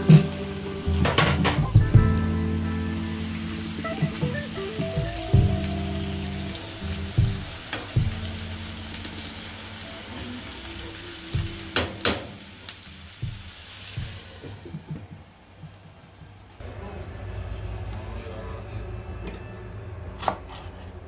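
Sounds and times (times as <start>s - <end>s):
stew sizzling in a frying pan: 0.0s - 15.0s.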